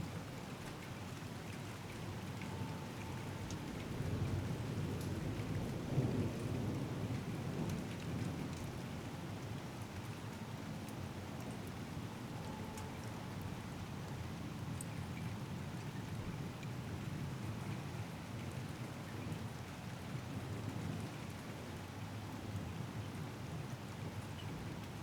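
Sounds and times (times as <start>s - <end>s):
rain falling: 0.1s - 12.5s.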